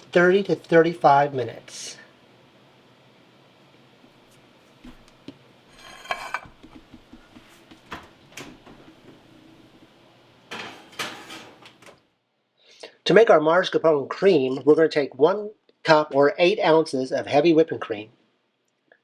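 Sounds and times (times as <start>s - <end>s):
kitchen dishes clinking: 5.8s - 6.8s, 10.5s - 11.7s.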